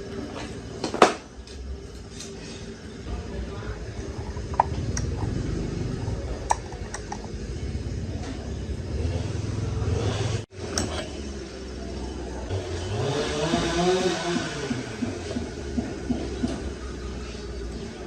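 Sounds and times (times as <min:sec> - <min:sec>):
low steady rumble: 0:03.0 - 0:10.2.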